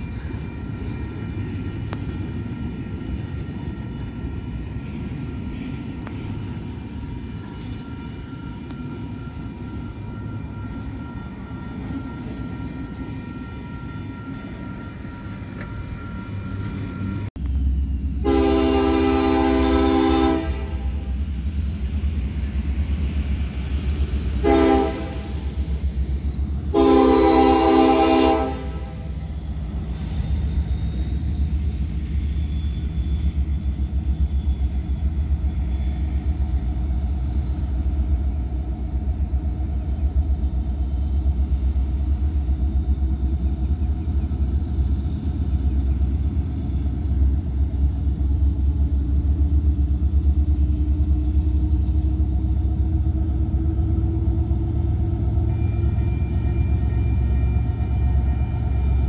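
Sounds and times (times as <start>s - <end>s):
locomotive air horn blast: 18.2s - 21.1s, 24.4s - 25.3s, 26.7s - 29.2s.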